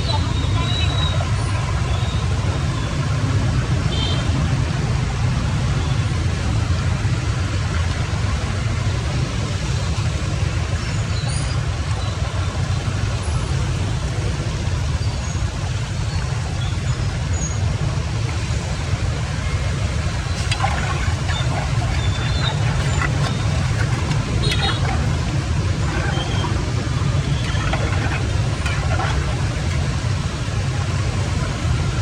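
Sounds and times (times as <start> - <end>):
floodwater rushing: 19.3 - 32.0.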